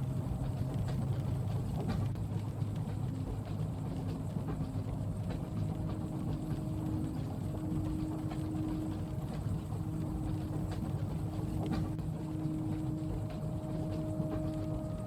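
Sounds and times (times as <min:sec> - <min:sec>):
train running rumble: 0:00.0 - 0:15.0
faint hum: 0:03.7 - 0:15.0.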